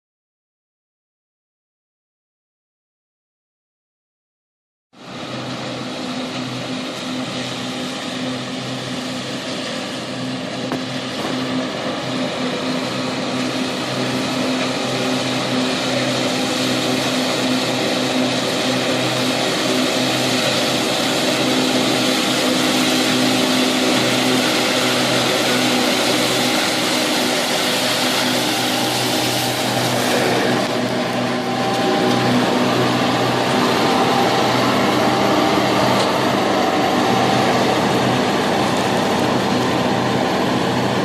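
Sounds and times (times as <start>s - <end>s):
tractor engine running: 5.0s - 41.0s.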